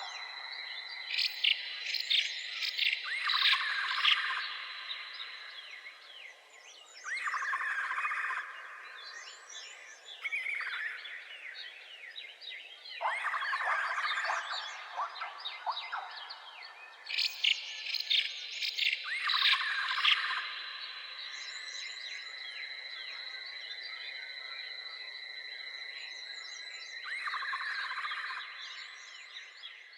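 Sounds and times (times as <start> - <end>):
birds chirping: 0.0 - 7.7, 8.4 - 22.4.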